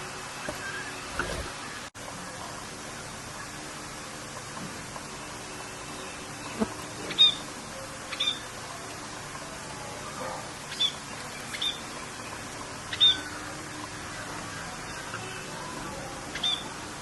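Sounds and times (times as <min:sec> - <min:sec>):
rain hissing: 0:00.0 - 0:17.0
songbird chirping: 0:05.2 - 0:16.8.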